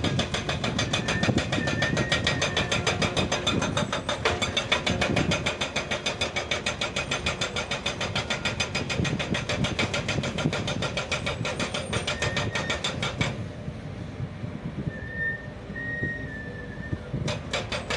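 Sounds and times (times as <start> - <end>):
heavy machine engine knocking: 0.0 - 13.5, 17.1 - 17.9.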